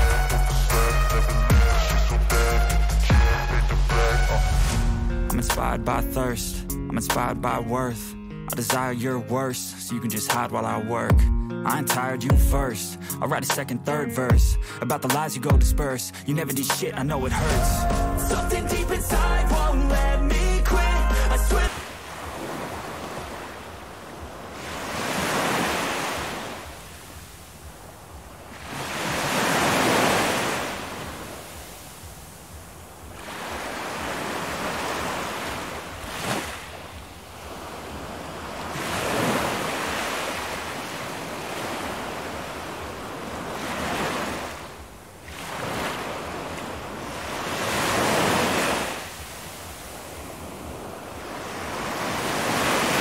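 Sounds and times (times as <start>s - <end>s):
ocean waves washing in: 3.3s - 9.6s, 15.9s - 53.0s.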